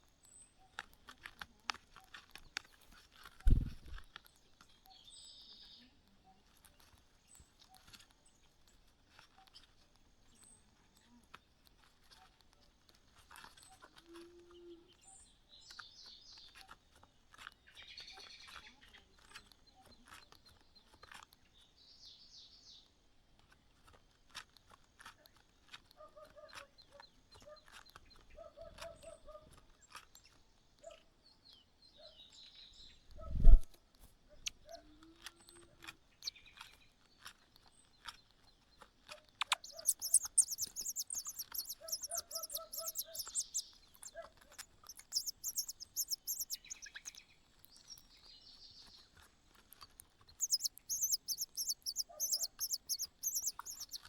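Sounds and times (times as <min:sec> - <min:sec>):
small birds chirping: 0:00.0 - 0:54.0
light rustling clicks: 0:38.8 - 0:48.1
rapid high-pitched chirping: 0:39.4 - 0:44.2, 0:44.8 - 0:47.2, 0:50.3 - 0:54.0.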